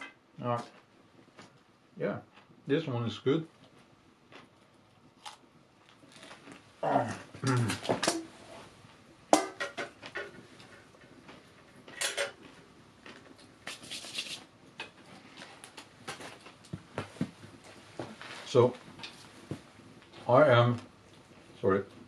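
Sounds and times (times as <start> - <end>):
cookware and cutlery clinking: 9.3 - 11.0, 11.9 - 12.5.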